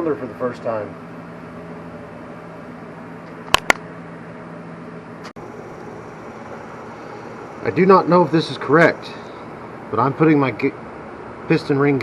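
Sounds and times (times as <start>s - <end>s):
low workshop hum: 0.0s - 12.0s
sharp clicks: 3.5s - 3.8s.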